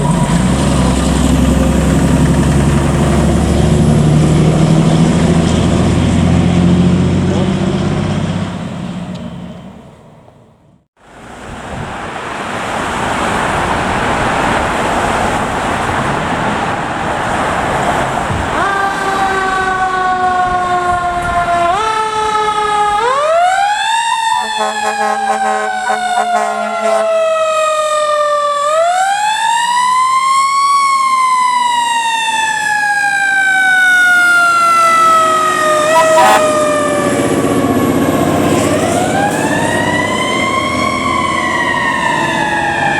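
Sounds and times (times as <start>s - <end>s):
fire truck engine and road noise: 0.0s - 42.9s
siren wailing: 18.5s - 42.9s
horn blast: 24.4s - 27.2s, 35.6s - 37.0s.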